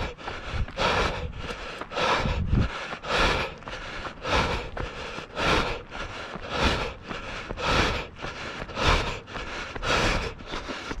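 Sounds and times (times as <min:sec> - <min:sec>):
runner breathing hard: 0:00.0 - 0:11.0.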